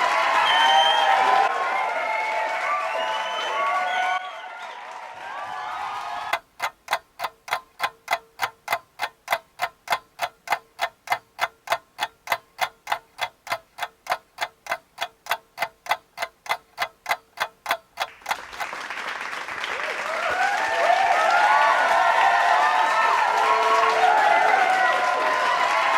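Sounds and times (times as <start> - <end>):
rapid even ticking: 6.3 - 18.8.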